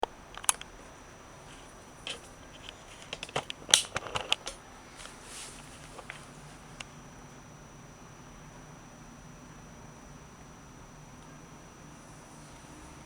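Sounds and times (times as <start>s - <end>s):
soft rustle: 0.8s - 6.9s
objects clicking and knocking: 2.1s - 6.2s.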